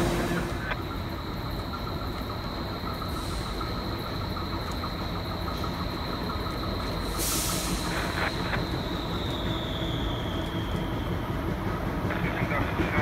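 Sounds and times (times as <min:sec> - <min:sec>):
train rumble with whine: 0:00.0 - 0:13.0
loud hiss of air: 0:07.0 - 0:10.4.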